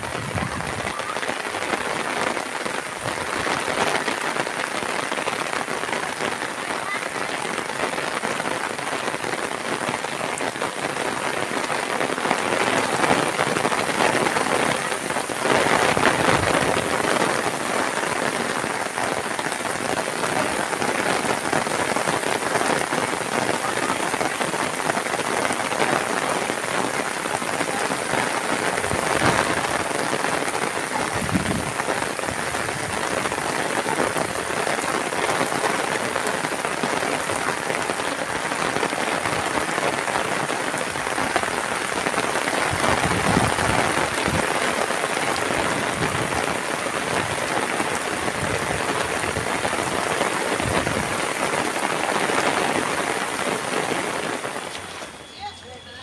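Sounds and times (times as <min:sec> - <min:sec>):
heavy rain on roofs: 0:00.0 - 0:56.0.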